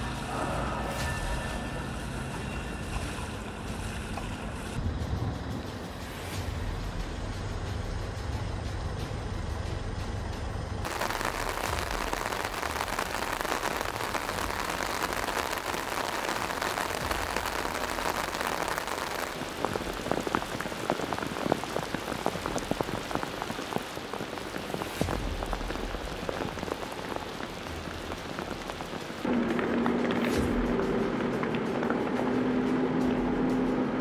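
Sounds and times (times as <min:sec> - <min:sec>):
torrential rain hissing: 0:00.0 - 0:09.6, 0:10.6 - 0:33.8
sharp raindrop hits: 0:10.8 - 0:32.8.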